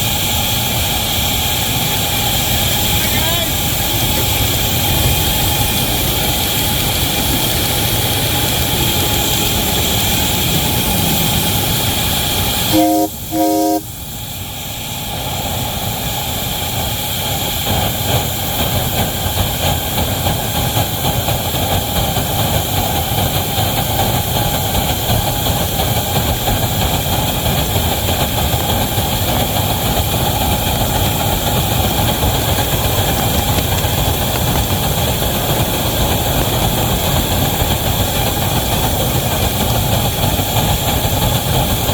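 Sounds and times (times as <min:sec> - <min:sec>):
train running: 0:00.0 - 0:41.9
locomotive whistle blasts: 0:12.6 - 0:14.0.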